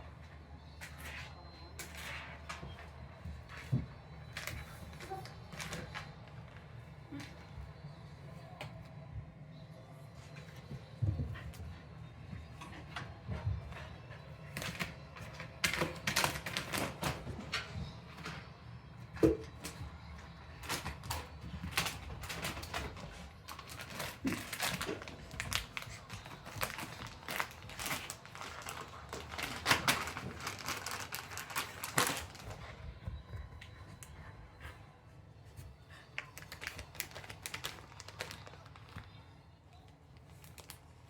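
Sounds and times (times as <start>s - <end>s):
plastic bag crinkling: 21.8s - 32.7s, 36.2s - 39.1s.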